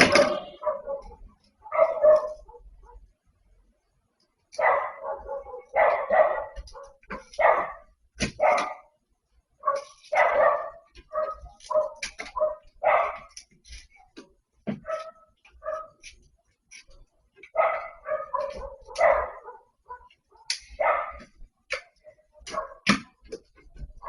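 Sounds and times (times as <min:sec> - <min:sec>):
dog barking: 0:00.0 - 0:03.1, 0:04.5 - 0:09.0, 0:09.6 - 0:13.4, 0:14.0 - 0:16.1, 0:17.4 - 0:23.2.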